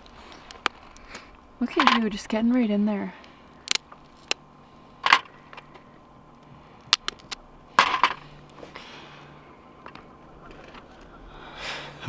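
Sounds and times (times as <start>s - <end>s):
crab shell cracking: 0.0s - 1.3s, 3.4s - 4.4s, 6.8s - 8.0s.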